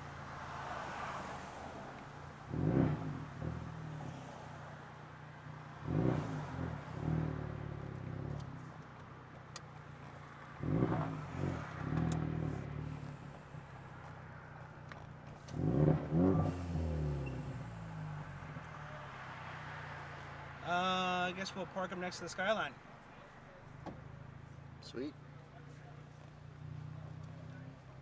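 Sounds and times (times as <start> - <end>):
car engine accelerating: 2.4 - 4.4, 5.8 - 8.8, 10.5 - 14.2, 14.9 - 20.4.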